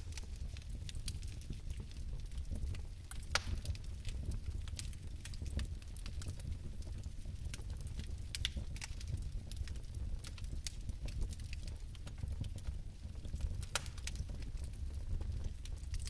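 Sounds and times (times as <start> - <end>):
fire crackling and rumbling: 0.0 - 16.0.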